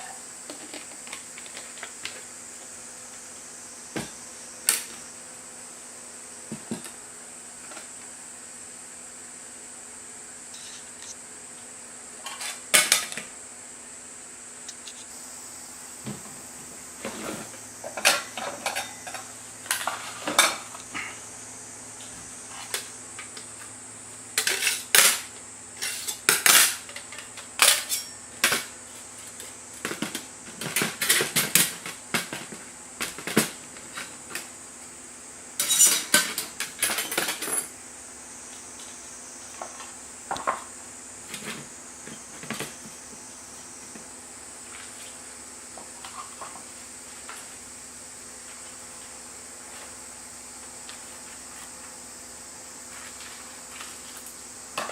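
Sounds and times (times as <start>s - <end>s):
metal cookware clinking: 18.0s - 19.2s, 27.7s - 28.2s, 35.6s - 36.4s.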